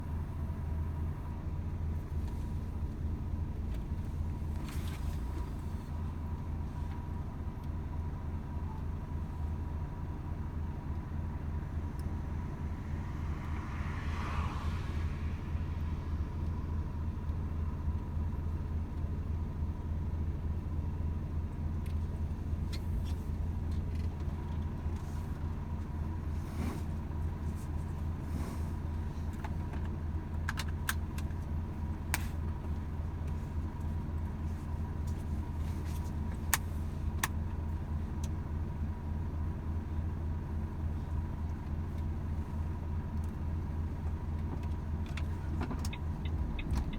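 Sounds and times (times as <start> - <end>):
road rumble: 0.0 - 46.9
truck diesel engine droning: 0.0 - 46.9.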